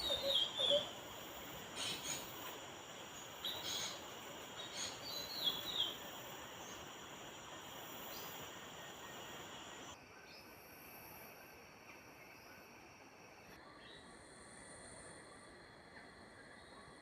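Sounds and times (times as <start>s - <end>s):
bird chirps: 0.0s - 1.0s, 3.2s - 6.0s
high-pitched insect trilling: 0.0s - 9.9s
background hiss: 0.0s - 17.0s.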